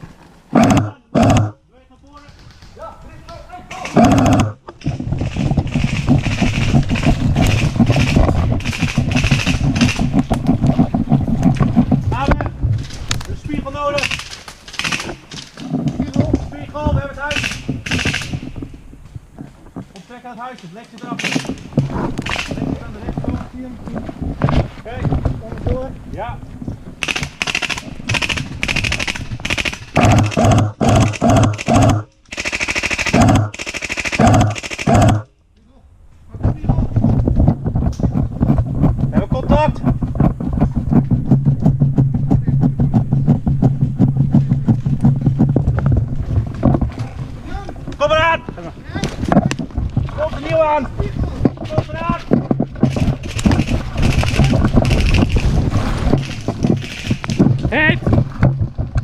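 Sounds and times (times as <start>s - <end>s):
airsoft guns firing bursts: 0.5s - 1.6s, 3.8s - 10.2s, 14.0s - 15.3s, 17.3s - 18.5s, 21.2s - 22.6s, 27.0s - 35.3s, 52.8s - 55.5s
gear rustling: 2.1s - 25.9s, 42.1s - 58.9s
quick footsteps: 2.2s - 32.1s, 36.1s - 59.0s.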